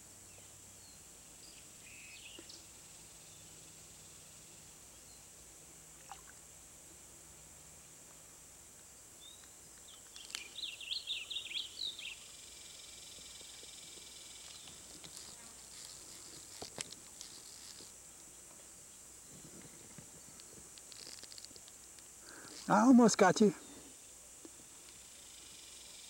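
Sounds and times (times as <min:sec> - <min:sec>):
small bird chirping: 0:00.3 - 0:02.7, 0:09.2 - 0:16.6
high-pitched insect drone: 0:11.6 - 0:18.0, 0:24.9 - 0:26.0.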